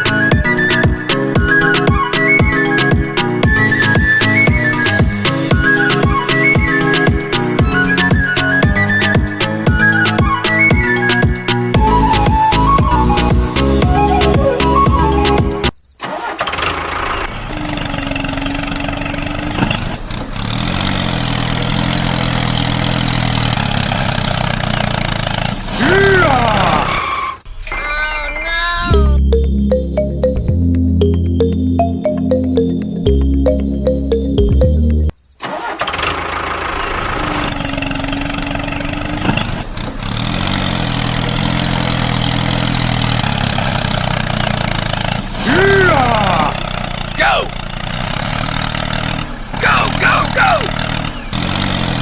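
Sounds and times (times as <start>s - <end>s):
background music: 0.0s - 15.7s, 28.8s - 35.1s
engine running: 0.0s - 27.5s, 28.9s - 52.0s
engine-like motor running: 35.4s - 52.0s.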